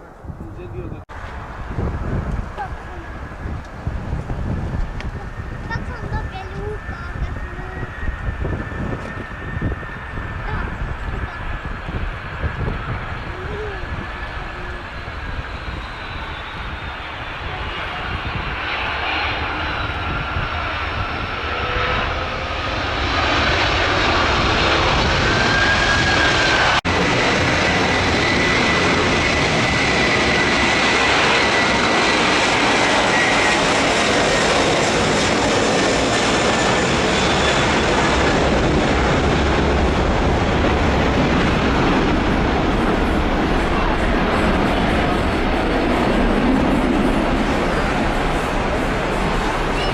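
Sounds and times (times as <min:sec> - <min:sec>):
jet engines roaring with whine: 0:00.0 - 0:49.9.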